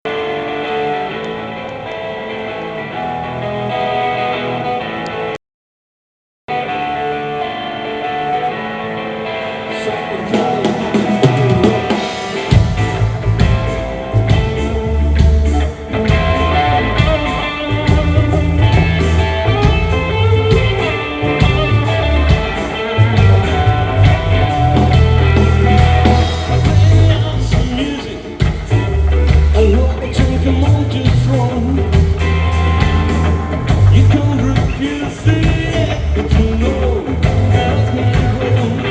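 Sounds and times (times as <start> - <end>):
electric guitar: 0.1 - 5.4, 6.5 - 38.9
bass and drums: 10.0 - 38.9.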